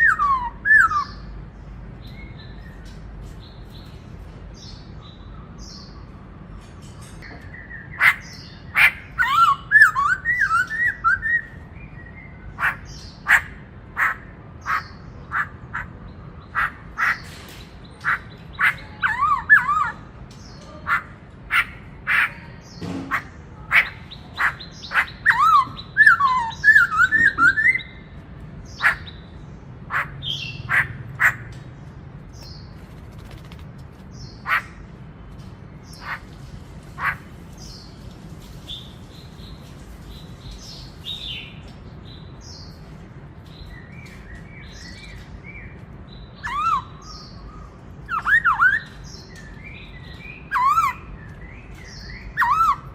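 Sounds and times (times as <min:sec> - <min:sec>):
bird singing clipped notes: 0:00.0 - 0:52.9
bird warbling phrases: 0:18.0 - 0:27.8.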